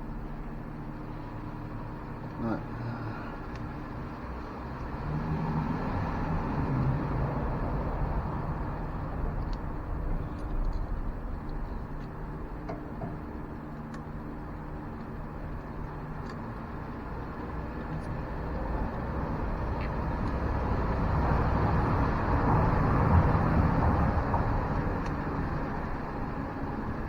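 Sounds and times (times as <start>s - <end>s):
vehicle driving past: 4.3s - 11.3s.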